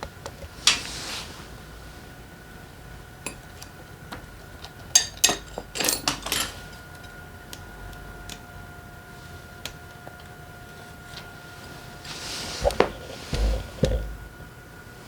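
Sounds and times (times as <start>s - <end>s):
metal tools clinking and clattering: 5.0s - 6.8s.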